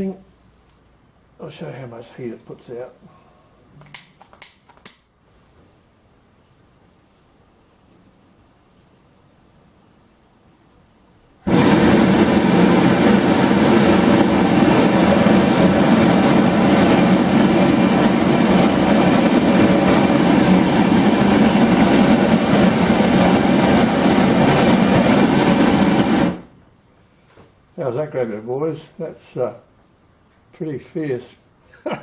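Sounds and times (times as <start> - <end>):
gas burner roaring: 11.4 - 26.6.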